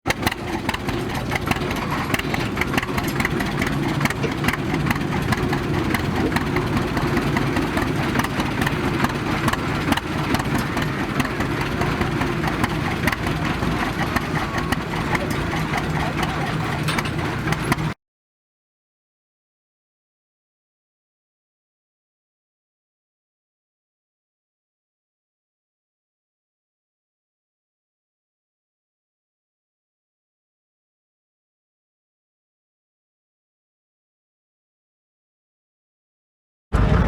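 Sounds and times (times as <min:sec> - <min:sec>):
tractor engine idling: 0:00.1 - 0:18.0
people talking: 0:00.5 - 0:18.0.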